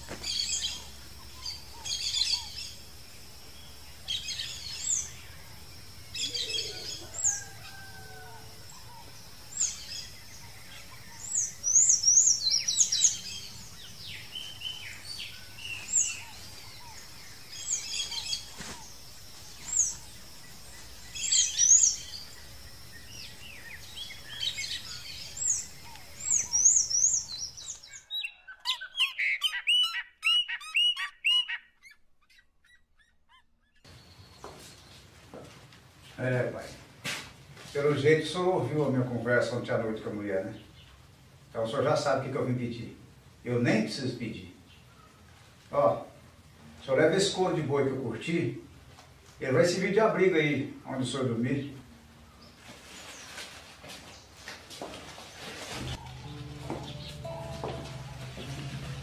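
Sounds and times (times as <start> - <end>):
birds chirping: 0.0 - 35.1, 55.1 - 59.0
bird calling in quick runs: 24.3 - 33.8
faint steady high tone: 56.0 - 59.0.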